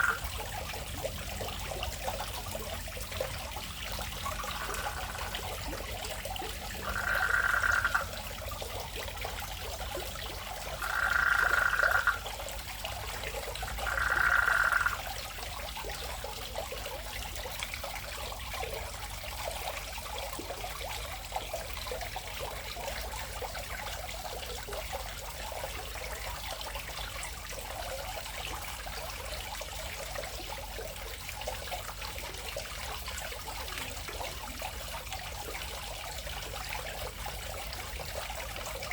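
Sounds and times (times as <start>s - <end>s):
frog calling: 0.0s - 0.2s, 4.4s - 5.3s, 6.8s - 8.2s, 10.8s - 12.2s, 13.8s - 15.0s
water trickling: 0.0s - 38.9s.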